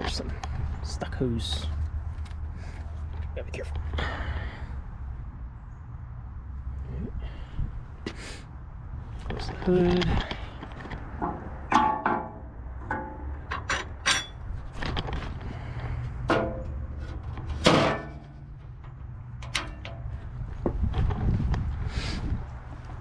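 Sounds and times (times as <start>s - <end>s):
metal hood clanking: 11.2s - 15.3s, 16.2s - 20.2s.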